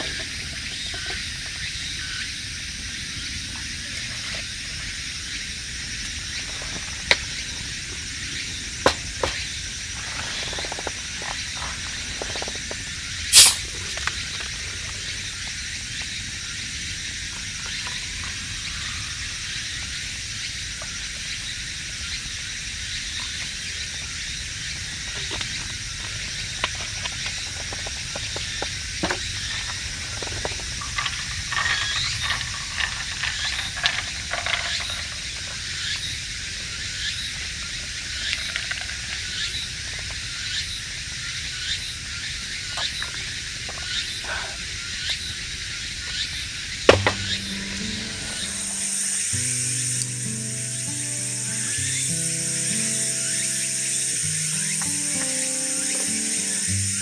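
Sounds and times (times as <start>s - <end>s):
small crackles: 8.9s - 15.3s, 24.7s - 41.2s
food sizzling in a pan: 13.3s - 13.7s
sharp pop: 13.3s - 13.9s, 46.9s - 48.8s.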